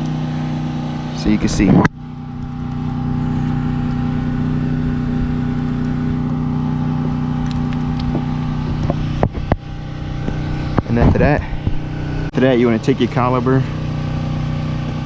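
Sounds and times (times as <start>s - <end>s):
steady engine-like hum: 0.0s - 15.0s.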